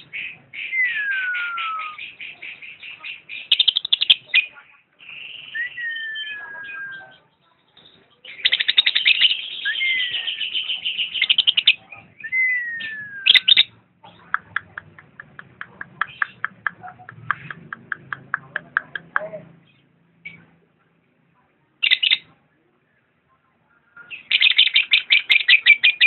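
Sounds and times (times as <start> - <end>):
lovebird chirping: 0.0 - 19.0, 21.8 - 22.3, 24.0 - 26.0.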